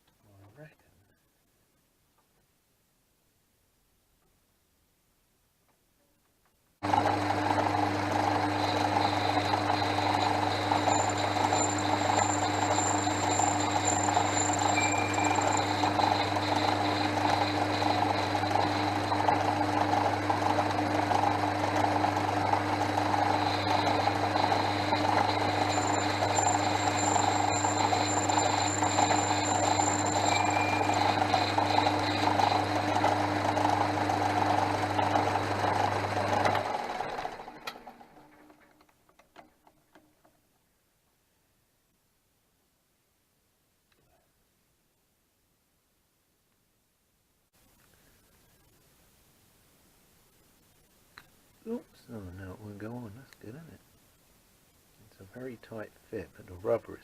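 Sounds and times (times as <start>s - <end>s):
metal lathe humming: 6.8s - 38.3s
faint high whine: 8.4s - 35.3s.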